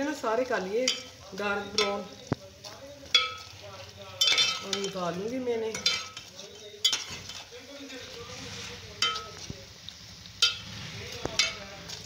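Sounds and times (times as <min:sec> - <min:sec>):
bread sizzling in fat: 0:00.0 - 0:12.0
spoon clinking against pan: 0:00.8 - 0:02.4, 0:03.0 - 0:05.1, 0:05.7 - 0:07.5, 0:09.0 - 0:09.5, 0:10.4 - 0:10.7, 0:11.4 - 0:12.0.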